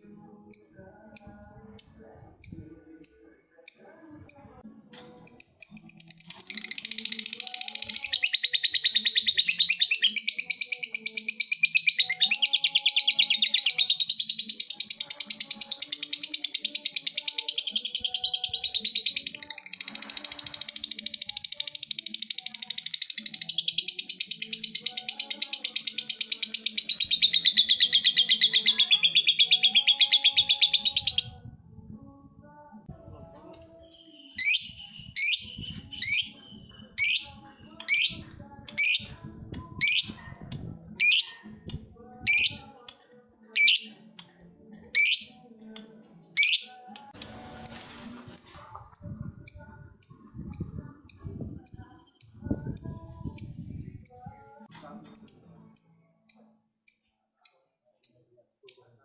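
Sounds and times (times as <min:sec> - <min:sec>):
bird rapid high trill: 0:43.6 - 0:43.9.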